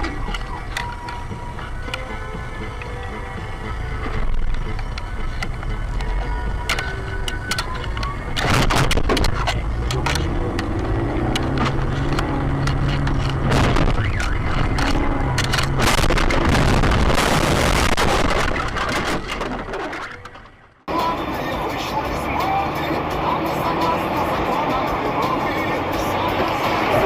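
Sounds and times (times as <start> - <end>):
car engine hum: 0.0 - 27.0
road noise inside vehicle: 0.0 - 27.0
loud noisy rush: 13.4 - 18.9.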